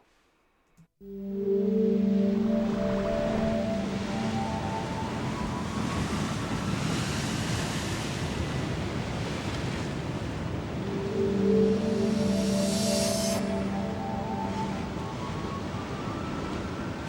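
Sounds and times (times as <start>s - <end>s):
music: 1.0s - 6.8s, 10.8s - 17.0s
steady rushing noise: 2.1s - 17.0s.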